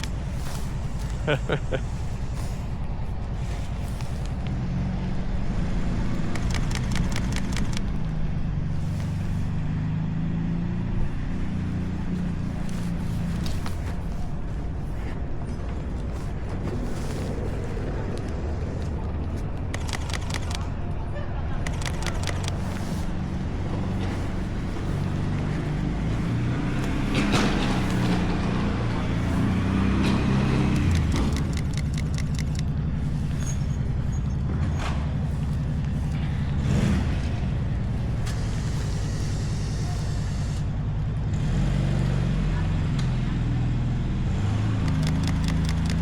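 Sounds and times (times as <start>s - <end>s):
vehicle engine humming: 0.0s - 46.0s
sharp clicks: 6.1s - 8.2s, 18.1s - 20.8s, 21.6s - 23.2s, 29.4s - 35.7s, 44.8s - 46.0s.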